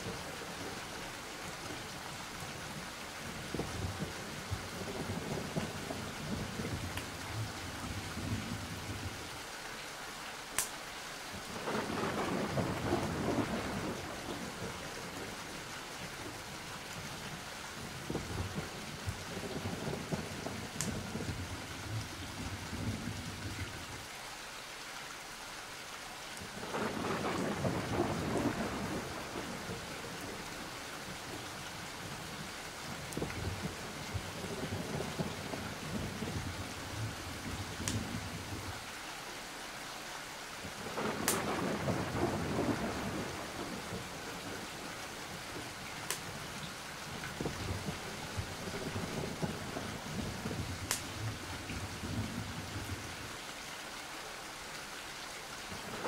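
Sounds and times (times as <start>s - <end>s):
steady rain: 0.0s - 56.0s
thunder rolling: 11.6s - 15.3s, 18.0s - 23.7s, 26.6s - 30.5s, 40.8s - 45.8s, 47.1s - 53.0s.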